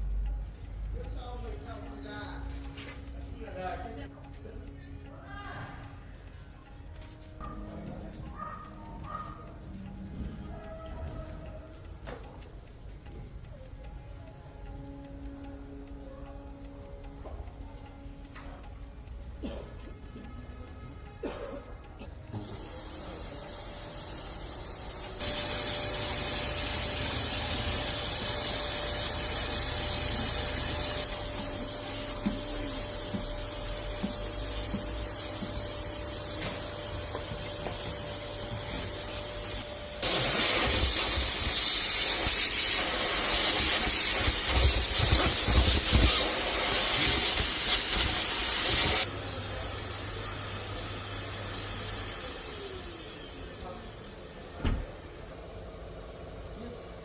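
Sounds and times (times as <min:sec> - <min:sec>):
vacuum cleaner running: 0:22.2 - 0:57.0.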